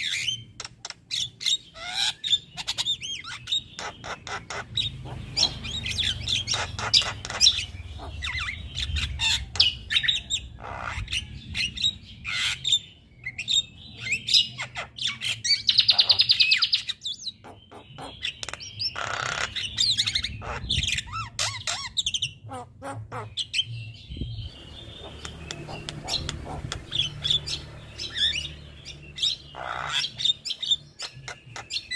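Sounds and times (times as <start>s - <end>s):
harsh rasping bird call: 24.5s - 31.9s.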